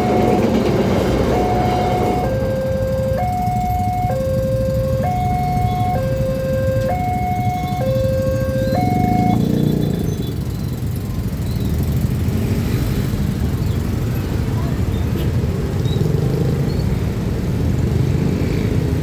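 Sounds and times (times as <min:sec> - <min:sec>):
two-tone crossing alarm: 0:00.0 - 0:10.9
idling road traffic rumble: 0:00.0 - 0:19.0.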